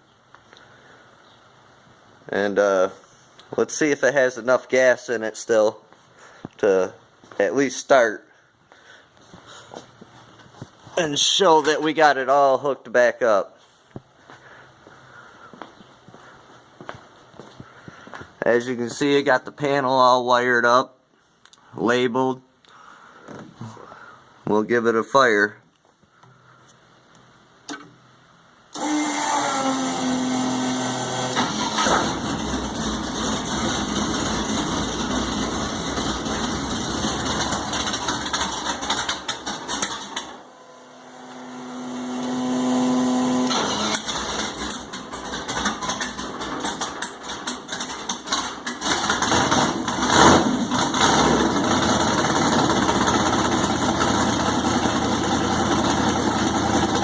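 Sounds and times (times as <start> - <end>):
engine cranking: 30.3 - 40.4, 43.4 - 57.0
race car engine running: 30.5 - 57.0.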